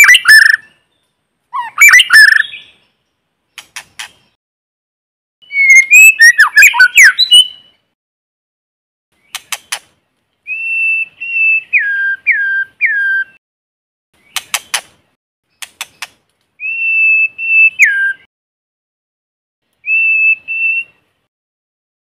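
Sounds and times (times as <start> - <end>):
bird whistled song: 0.0 - 3.0, 5.4 - 7.9, 10.4 - 13.4, 15.5 - 18.3, 19.8 - 21.1
sharp bird clicks: 3.5 - 4.4, 9.2 - 10.0, 14.2 - 16.5.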